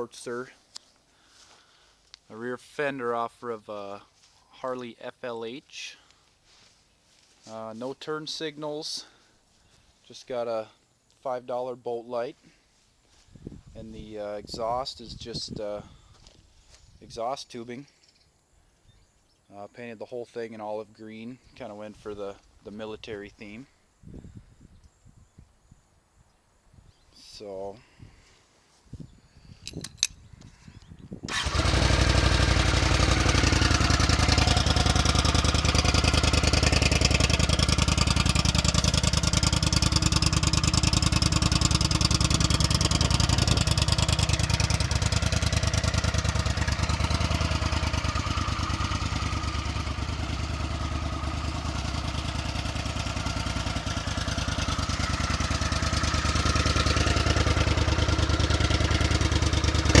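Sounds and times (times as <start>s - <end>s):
motorcycle engine starting and running: 31.3s - 60.0s.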